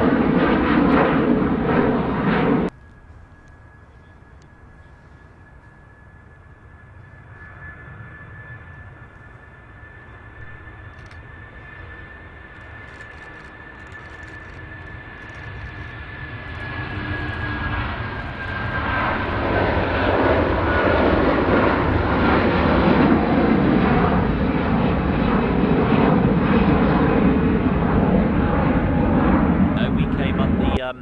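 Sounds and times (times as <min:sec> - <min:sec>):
jet airliner passing: 0:00.0 - 0:31.0.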